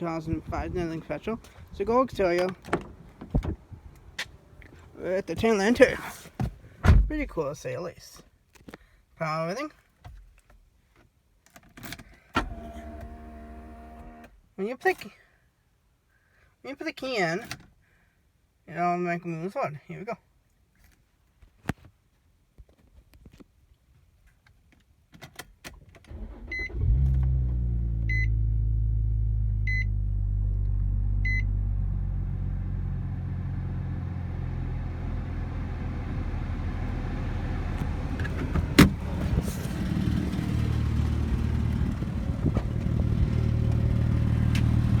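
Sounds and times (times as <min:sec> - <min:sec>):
car engine cranking and idling: 0:00.0 - 0:06.2, 0:12.4 - 0:14.3, 0:26.1 - 0:45.0
dashboard warning chime beeps: 0:28.1 - 0:28.3, 0:29.7 - 0:29.9, 0:31.2 - 0:31.5.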